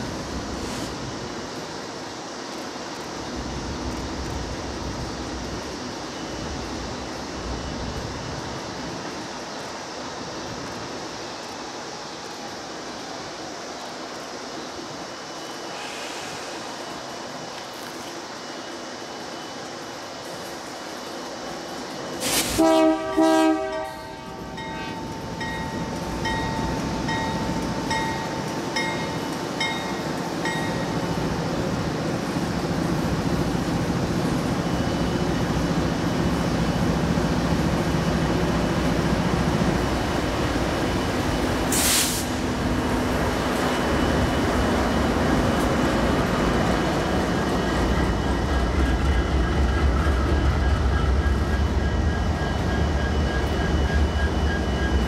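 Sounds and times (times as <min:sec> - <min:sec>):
diesel locomotive engine rumble: 0:00.0 - 0:55.0
train wheels on rail: 0:00.0 - 0:55.0
short hiss: 0:15.6 - 0:17.3, 0:22.2 - 0:22.6, 0:41.7 - 0:42.4.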